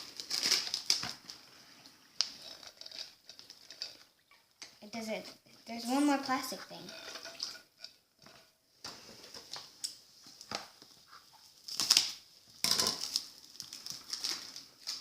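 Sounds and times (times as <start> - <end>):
plastic wrapping crinkling: 0.0 - 5.0, 9.2 - 15.0.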